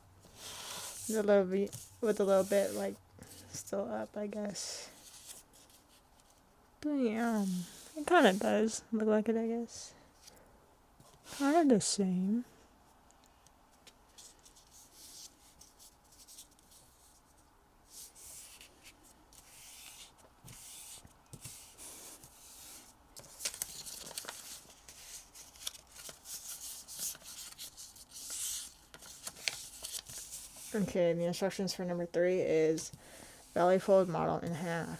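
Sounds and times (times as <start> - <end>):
paper rustling and rubbing: 0.2 - 3.6, 4.9 - 6.4, 7.2 - 8.6, 13.8 - 31.0
paper crinkling: 18.4 - 30.9.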